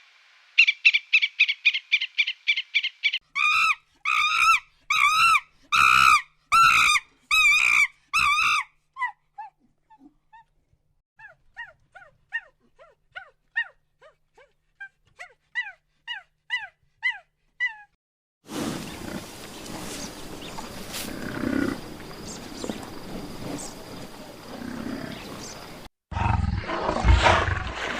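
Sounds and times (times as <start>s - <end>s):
animal calling: 18.7s - 25.8s.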